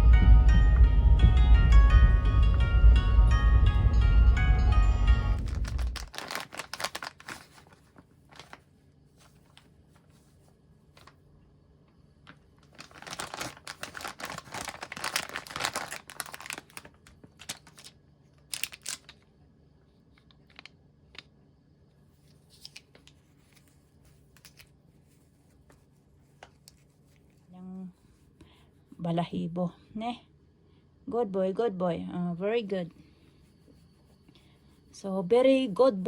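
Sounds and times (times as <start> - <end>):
rustling and crinkling handling: 5.4 - 11.3, 11.9 - 19.3, 20.0 - 21.3, 22.1 - 28.4.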